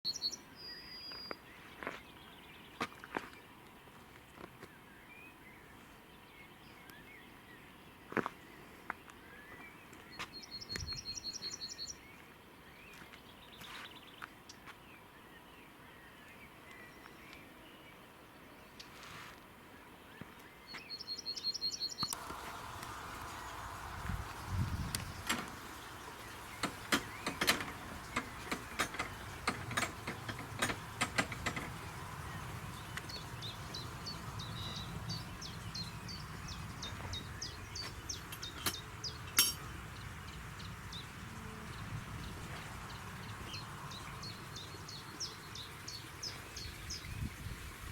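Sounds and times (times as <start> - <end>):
small birds singing: 0.0 - 18.9, 19.8 - 47.8
steady outdoor hiss: 0.1 - 47.9
sharp clicks: 24.9 - 32.4.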